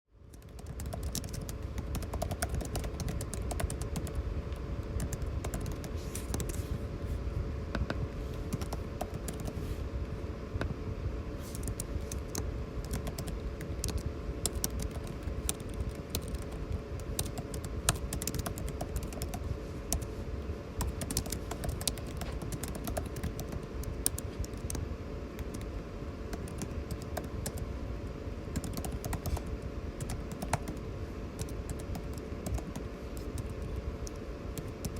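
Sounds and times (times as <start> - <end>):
air conditioning hum: 0.1 - 34.9
typing on computer keyboard: 0.3 - 4.2, 5.0 - 6.6, 8.5 - 9.6, 11.6 - 20.1, 20.8 - 24.8, 26.3 - 27.6, 28.5 - 30.8, 31.4 - 34.9.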